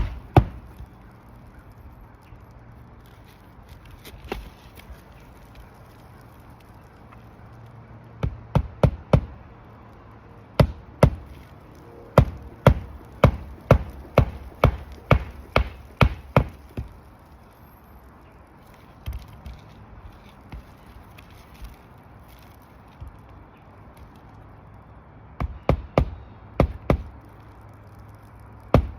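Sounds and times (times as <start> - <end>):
hammer striking roofing nails: 0.0 - 0.7, 8.2 - 9.4, 10.6 - 11.3, 12.2 - 17.0, 25.4 - 27.1.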